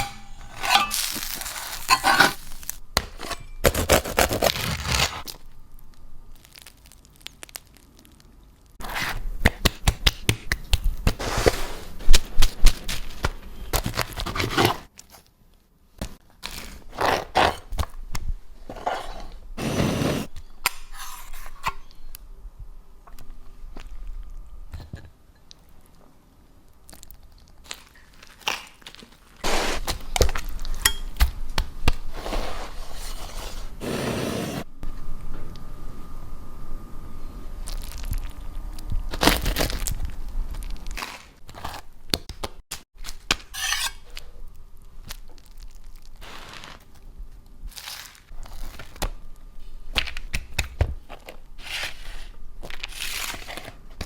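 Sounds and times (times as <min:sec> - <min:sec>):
crunching of crusty sandwiches: 0:00.9 - 0:05.6, 0:06.3 - 0:09.0, 0:26.7 - 0:30.6, 0:37.6 - 0:42.2, 0:44.1 - 0:49.2.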